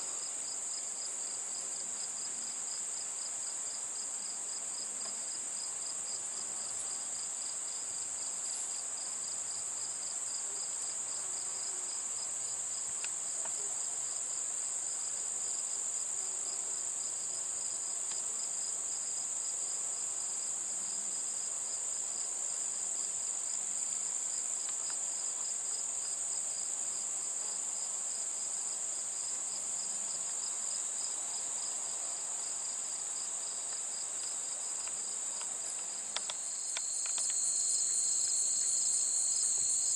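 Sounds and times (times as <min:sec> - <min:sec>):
high insect trill: 0:29.2 - 0:39.9
pulsed cricket chirping: 0:33.2 - 0:39.9.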